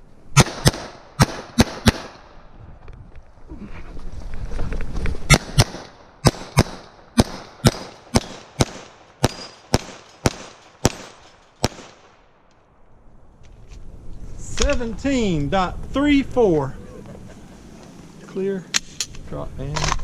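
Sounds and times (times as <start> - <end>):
pistol shots: 0.4 - 2.3, 5.3 - 12.2.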